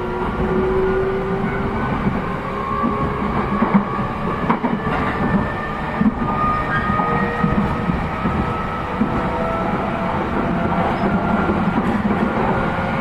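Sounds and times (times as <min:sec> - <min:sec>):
train wheels rumbling on rail: 0:00.0 - 0:13.0
clacks over rail joints: 0:02.8 - 0:09.4, 0:10.3 - 0:13.0.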